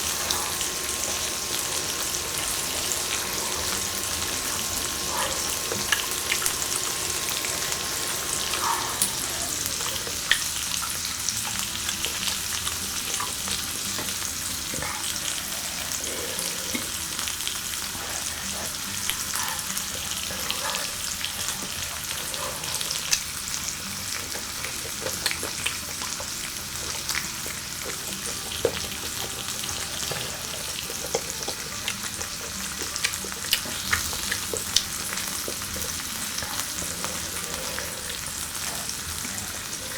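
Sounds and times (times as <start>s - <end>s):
food sizzling on a grill: 0.0s - 39.9s.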